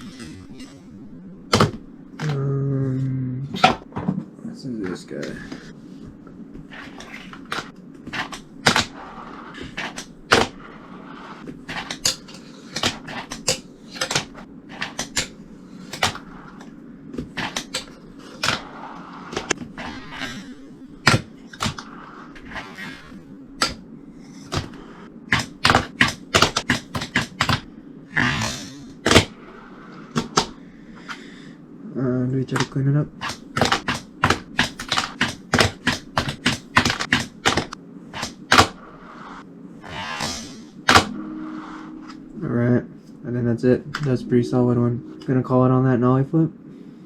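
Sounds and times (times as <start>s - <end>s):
fingerboard clicks and landings: 6.7s - 10.7s, 24.4s - 27.7s.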